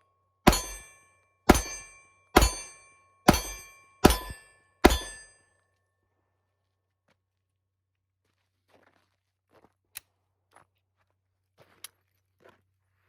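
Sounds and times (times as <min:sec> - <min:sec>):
short metallic ring: 0:00.0 - 0:05.5
gunshots: 0:00.5 - 0:05.3.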